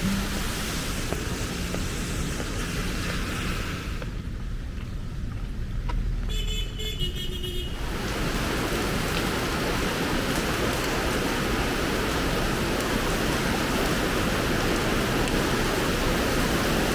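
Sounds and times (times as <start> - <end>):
heavy rain hiss: 0.0 - 4.4, 7.8 - 16.9
low rumble: 0.0 - 5.8
vehicle horn: 6.3 - 7.8.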